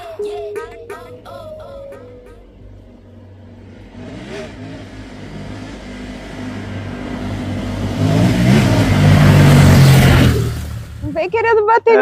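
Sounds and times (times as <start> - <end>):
motorcycle engine approaching: 0.0 - 12.0.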